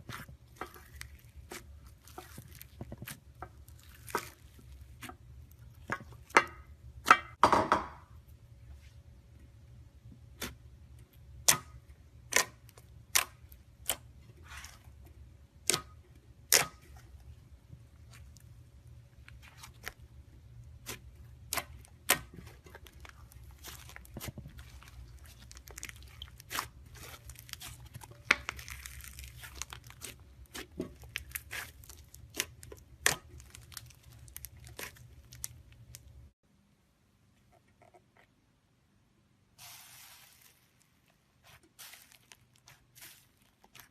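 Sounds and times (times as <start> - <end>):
slime popping and crackling: 0.0 - 5.0, 20.8 - 36.2.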